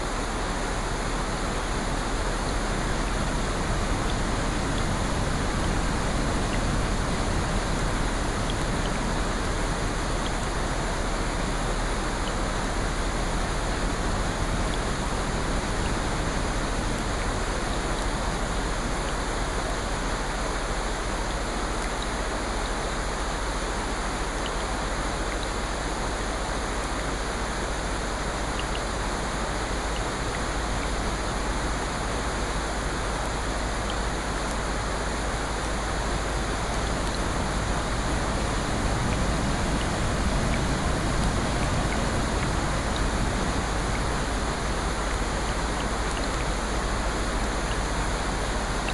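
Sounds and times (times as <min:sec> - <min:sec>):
rushing water: 0:00.0 - 0:48.9
faint small ticks: 0:21.8 - 0:22.2, 0:45.5 - 0:46.9.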